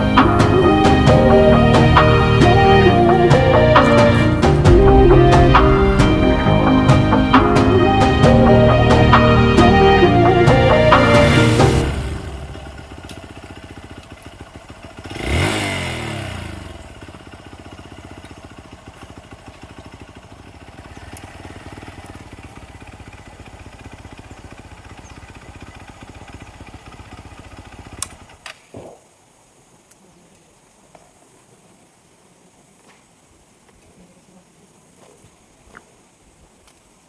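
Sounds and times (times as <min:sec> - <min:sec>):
motorcycle engine idling: 0:00.0 - 0:28.4.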